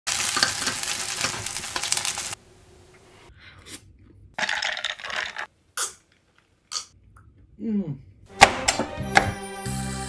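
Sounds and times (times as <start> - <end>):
food sizzling on a griddle: 0.1 - 2.4.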